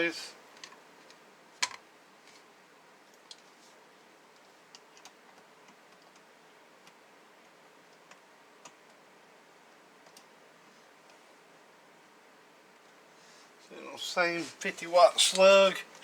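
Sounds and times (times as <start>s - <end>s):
steady hiss: 9.1s - 16.0s.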